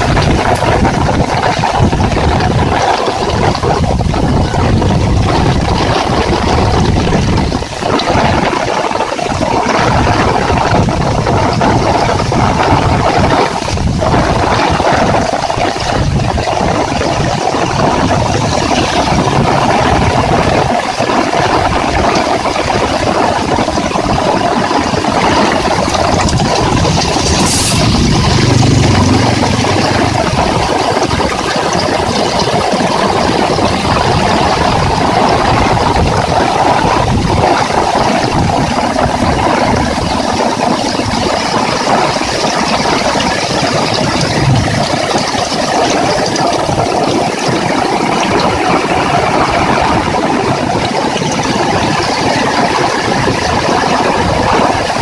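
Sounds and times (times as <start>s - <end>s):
heavy rain falling: 0.0s - 55.0s
short sharp hiss: 26.9s - 28.1s.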